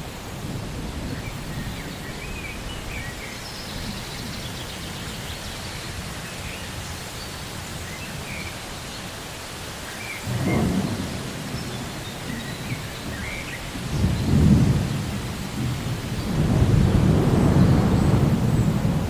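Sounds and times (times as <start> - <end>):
steady rainfall: 0.0 - 19.0.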